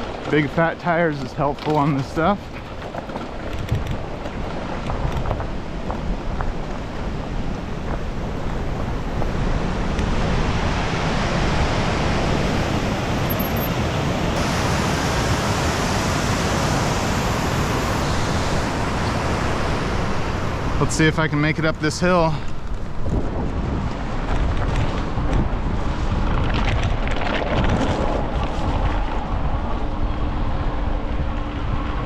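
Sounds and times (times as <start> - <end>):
bike tyres rolling on dirt: 0.0 - 14.6, 20.8 - 30.1
wind on microphone: 2.4 - 21.9, 22.5 - 32.0.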